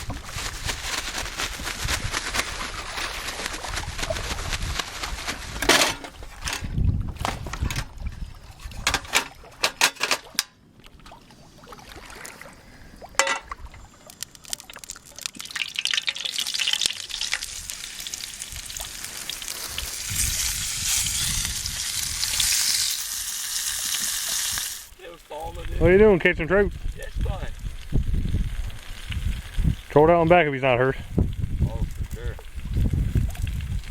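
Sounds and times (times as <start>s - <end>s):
handling clicks and knocks: 5.6s - 7.9s, 8.8s - 10.6s
fish sizzling in a frying pan: 15.4s - 26.1s.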